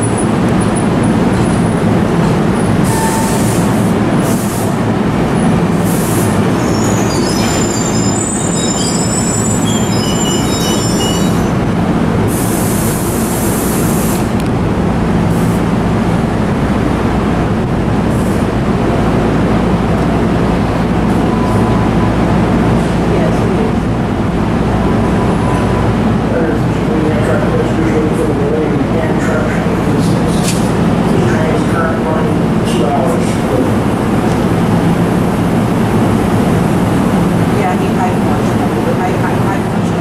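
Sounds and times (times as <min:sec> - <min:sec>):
train wheels rumbling on rail: 0:00.0 - 0:40.0
high-pitched wheel squeal: 0:02.9 - 0:03.4, 0:06.6 - 0:11.6.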